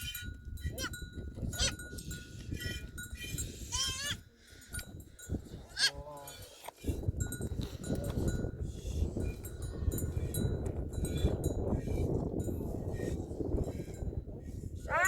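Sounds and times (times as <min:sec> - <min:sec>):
animal bells clinking: 0:00.0 - 0:14.2
goats bleating: 0:03.7 - 0:04.2, 0:05.7 - 0:06.3.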